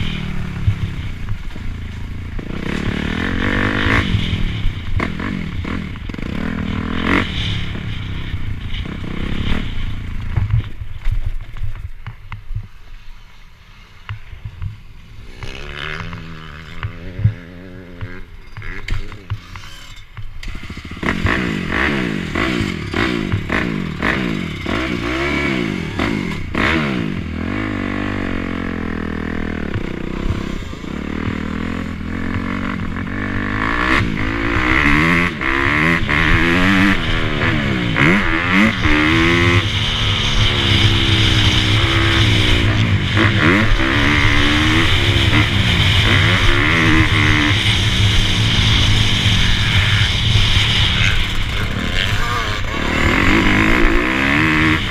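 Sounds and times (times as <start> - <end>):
dirt bike engines revving: 0.0 - 12.0, 12.7 - 54.9.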